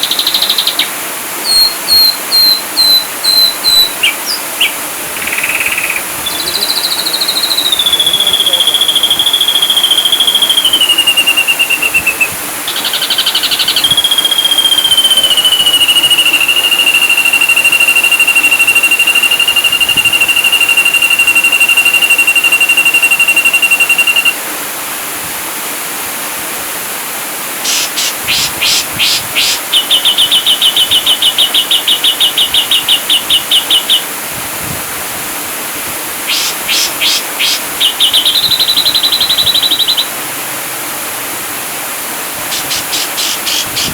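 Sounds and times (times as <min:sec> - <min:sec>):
bird trilled whistling song: 0:00.0 - 0:24.4, 0:27.7 - 0:34.1, 0:36.3 - 0:40.1, 0:42.5 - 0:43.9
steady hiss: 0:00.0 - 0:43.9.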